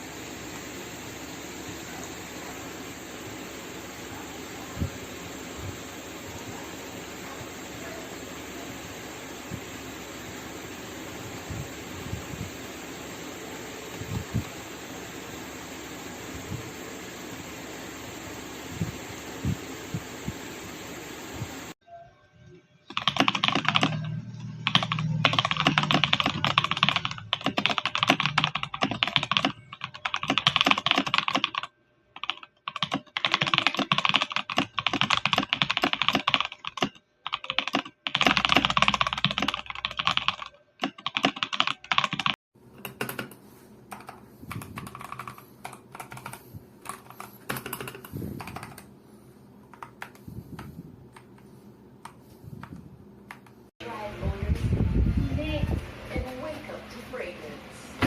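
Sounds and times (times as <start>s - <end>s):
typing on mechanical keyboard: 22.9s - 48.9s, 49.6s - 51.4s, 53.3s - 53.6s.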